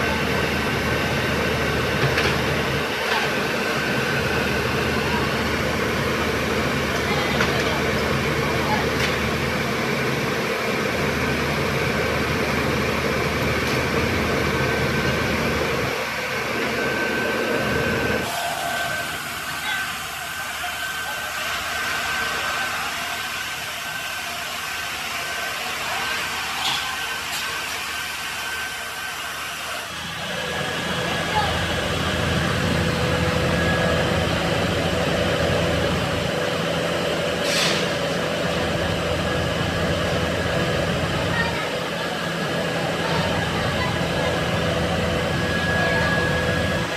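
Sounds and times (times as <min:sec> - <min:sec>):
constant mechanical whine: 0:00.0 - 0:46.9
workshop machinery running: 0:00.0 - 0:46.9
short hiss: 0:37.4 - 0:38.0.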